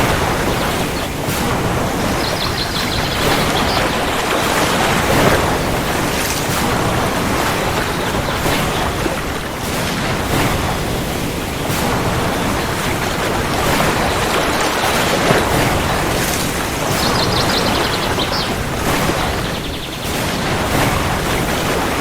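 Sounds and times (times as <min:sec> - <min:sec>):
heavy rain: 0:00.0 - 0:22.0.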